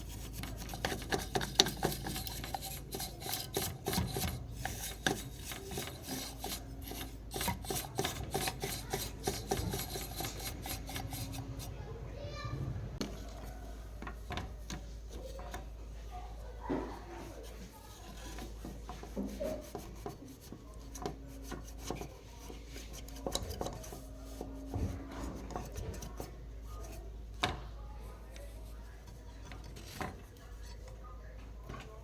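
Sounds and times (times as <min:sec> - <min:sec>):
tools clicking and tapping: 0:00.0 - 0:11.7, 0:14.0 - 0:15.8, 0:16.7 - 0:27.6
rubbing and scraping: 0:00.0 - 0:27.4, 0:28.1 - 0:31.1.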